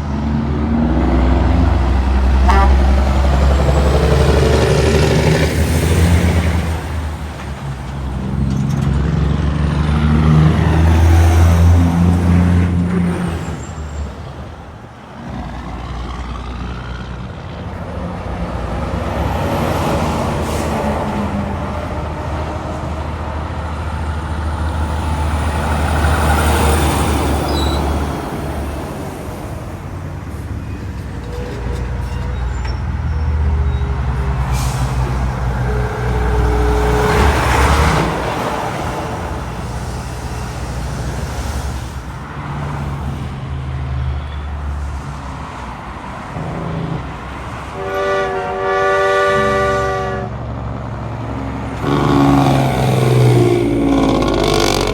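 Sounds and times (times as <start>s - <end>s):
diesel engine rumble: 0.0s - 54.9s
trucks passing by: 0.0s - 54.9s.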